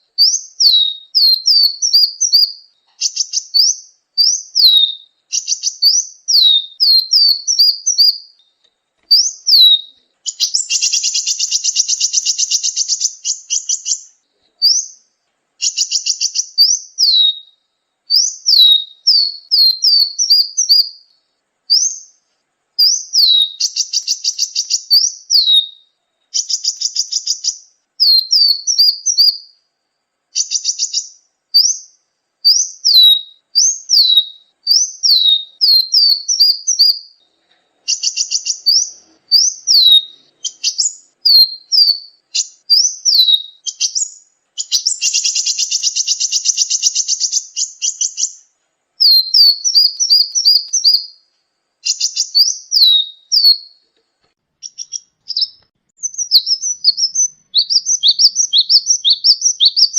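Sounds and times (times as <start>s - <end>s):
buzzy bird trill: 0.0s - 53.8s, 54.6s - 59.9s
bird whistling notes: 0.2s - 8.4s, 9.1s - 15.0s, 15.6s - 21.1s, 21.7s - 22.2s, 22.8s - 29.6s, 32.5s - 37.2s, 37.9s - 48.4s, 49.0s - 51.2s, 51.8s - 53.8s, 54.6s - 59.9s.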